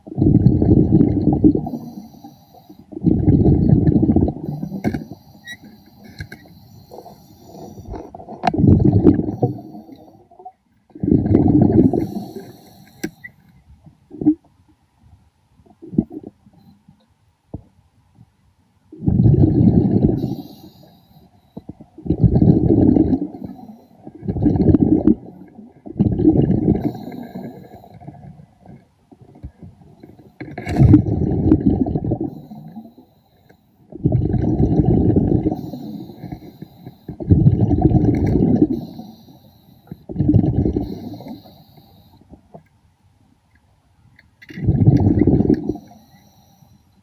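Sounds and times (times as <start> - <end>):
exhaled bubbles rushing: 0.0 - 1.9, 2.9 - 4.8, 7.5 - 10.0, 11.0 - 12.5, 19.0 - 20.4, 22.0 - 28.4, 30.4 - 32.8, 33.9 - 36.3, 37.1 - 38.9, 40.1 - 41.4, 44.5 - 45.8
hiss of inhaled air: 1.7 - 2.8, 4.5 - 8.0, 11.9 - 13.4, 20.2 - 21.4, 35.5 - 37.2, 38.7 - 40.0, 40.8 - 42.2.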